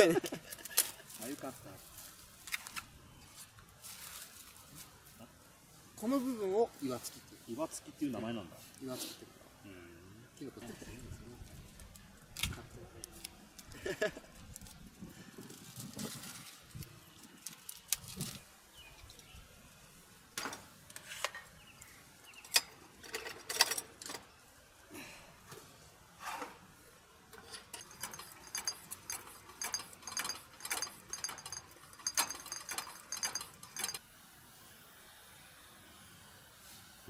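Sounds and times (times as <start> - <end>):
high ringing clinks: 27.4 - 34.0
small hard objects clicking: 27.4 - 34.0.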